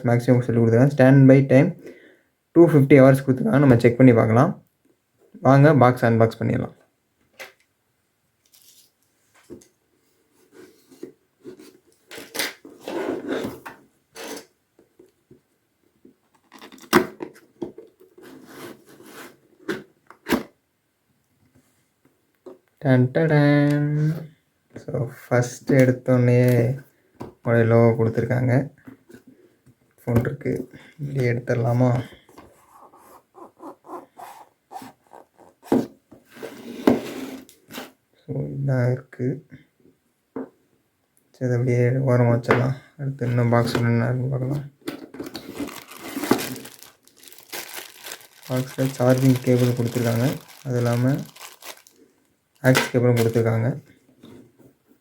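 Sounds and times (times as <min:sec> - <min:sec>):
packaging rustling: 0:45.2 - 0:53.5
cardboard scraping and rubbing: 0:45.4 - 0:46.7.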